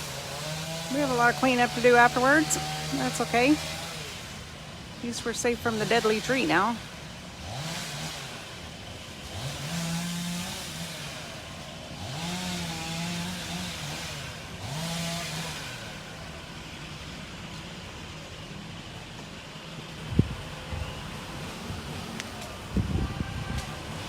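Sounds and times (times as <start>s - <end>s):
chainsaw engine revving: 0.0s - 16.5s.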